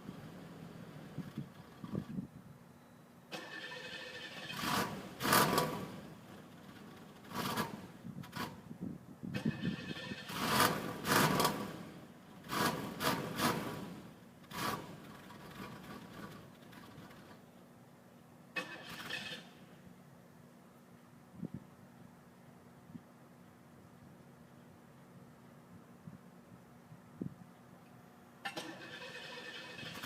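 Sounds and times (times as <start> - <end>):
car starter cranking engine: 3.3 - 8.6, 9.3 - 17.4, 18.6 - 19.6, 28.4 - 30.0.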